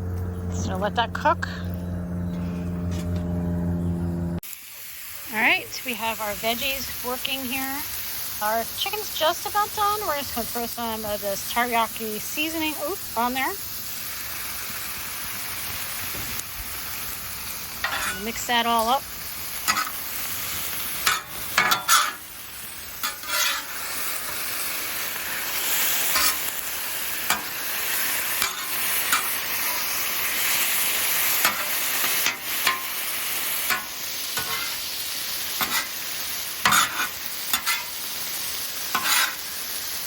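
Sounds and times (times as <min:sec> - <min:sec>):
food sizzling on a griddle: 0:04.4 - 0:40.0
spatula scraping griddle: 0:14.4 - 0:40.0.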